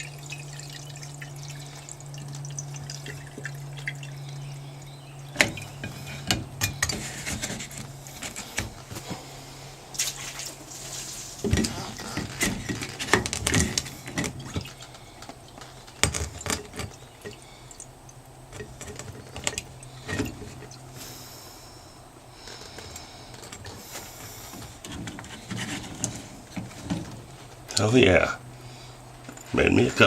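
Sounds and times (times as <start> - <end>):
water: 0.0 - 8.6, 9.9 - 22.0.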